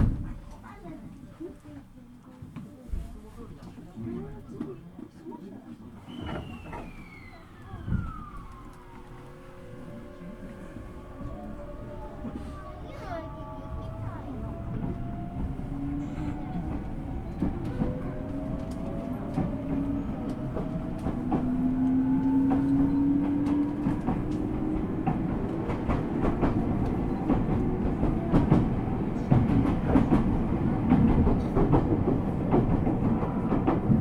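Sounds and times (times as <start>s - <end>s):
electric train inverter whine: 6.6s - 12.4s.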